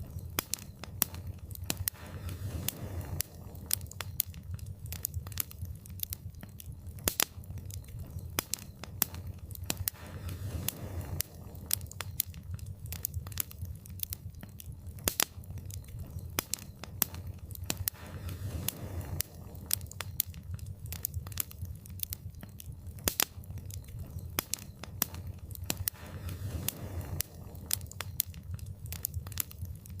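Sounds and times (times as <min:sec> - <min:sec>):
fire popping and snapping: 0:00.0 - 0:30.0
low rumble of burning: 0:00.0 - 0:30.0
wood fire crackling: 0:00.0 - 0:30.0.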